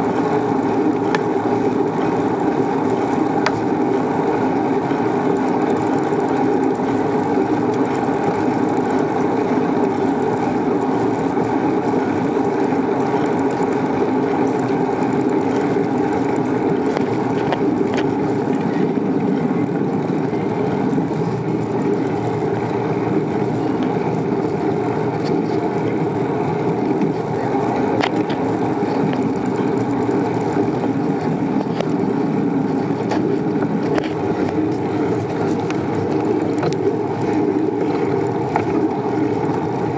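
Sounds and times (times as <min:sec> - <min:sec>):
bicycle tyres rolling on pavement: 0:00.0 - 0:39.9.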